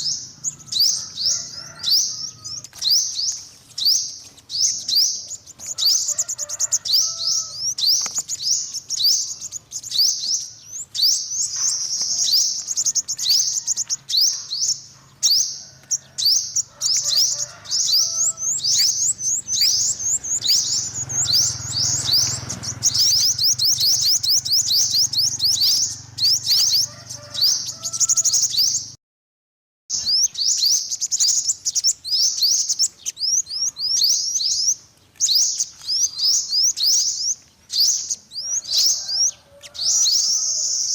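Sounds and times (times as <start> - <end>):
sunbird twittering: 0.0 - 28.9, 29.9 - 40.9.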